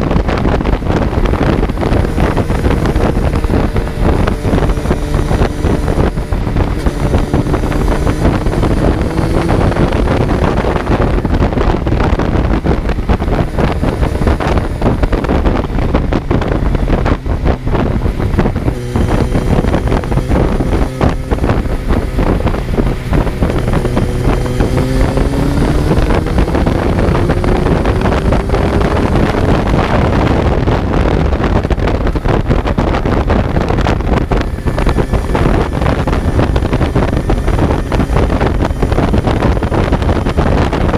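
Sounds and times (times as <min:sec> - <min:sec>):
motorcycle engine accelerating: 0:00.0 - 0:40.9
wind noise on microphone: 0:00.0 - 0:40.9.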